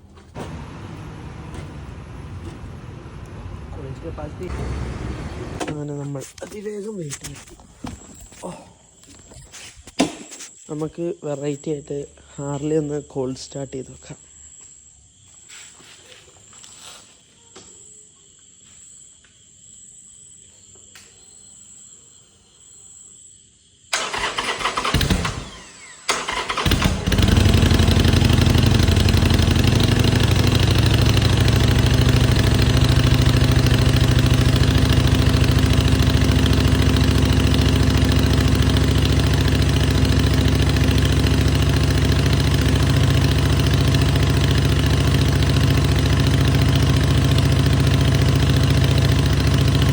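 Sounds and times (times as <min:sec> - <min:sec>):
motorcycle engine idling: 0:00.0 - 0:05.7, 0:26.2 - 0:49.9
motorcycle starter cranking: 0:23.9 - 0:49.9.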